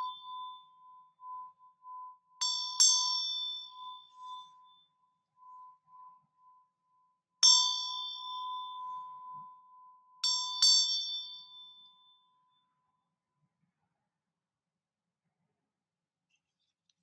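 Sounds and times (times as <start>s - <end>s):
faint steady tone: 0.0s - 13.6s
small metal chime ringing: 2.4s - 4.9s, 7.4s - 9.4s, 10.2s - 12.6s.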